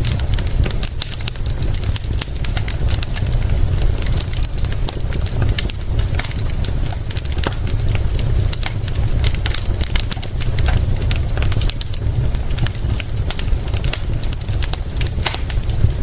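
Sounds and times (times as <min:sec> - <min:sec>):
steady low rumble: 0:00.0 - 0:16.0
wood fire crackling and popping: 0:00.0 - 0:16.0.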